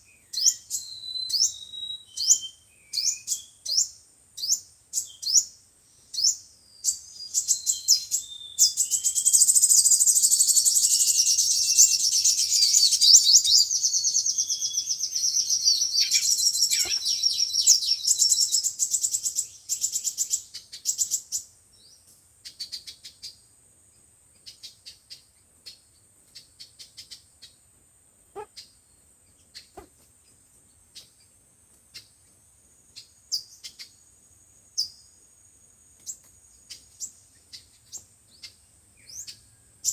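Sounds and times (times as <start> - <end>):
sunbird twittering: 0.0 - 23.2, 28.4 - 28.7
short single bird chirps: 14.6 - 18.6, 28.4 - 28.7.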